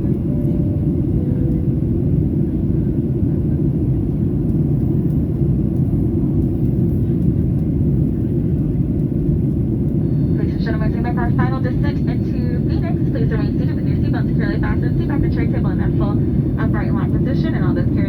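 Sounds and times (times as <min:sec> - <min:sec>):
airplane cabin rumble: 0:00.0 - 0:18.0.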